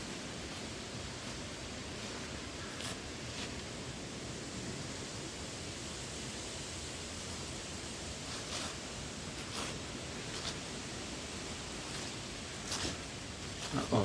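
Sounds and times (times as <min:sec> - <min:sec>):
footsteps crunching dry leaves: 0:00.0 - 0:03.6, 0:08.2 - 0:14.0
light breeze hiss: 0:00.0 - 0:14.0.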